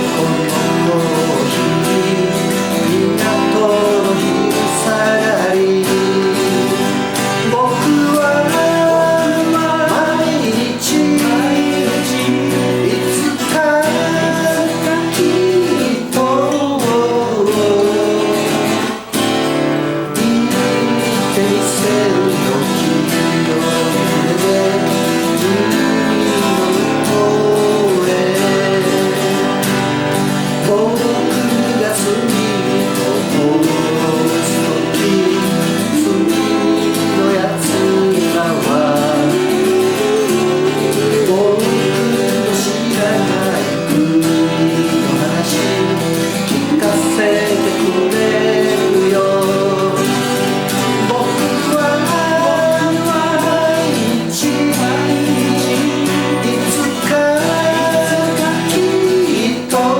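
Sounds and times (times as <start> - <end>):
instrumental melody line: 0.0 - 59.9
strummed acoustic guitars: 0.0 - 59.9.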